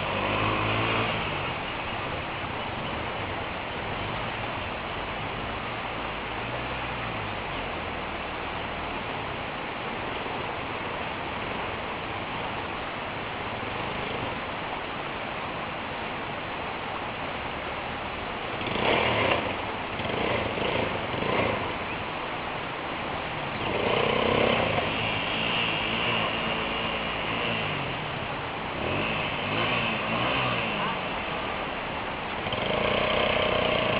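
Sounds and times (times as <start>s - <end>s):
motorcycle engine revving: 0.0s - 3.0s, 18.6s - 22.0s, 23.4s - 33.9s
steady rushing noise: 0.0s - 33.9s.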